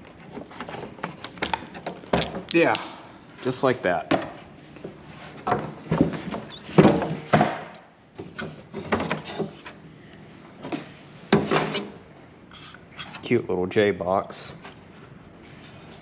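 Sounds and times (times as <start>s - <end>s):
knocks and scrapes of saw parts: 4.1s - 9.8s, 10.6s - 13.4s, 14.5s - 16.0s
parts squeaking: 5.2s - 7.3s, 11.6s - 13.4s.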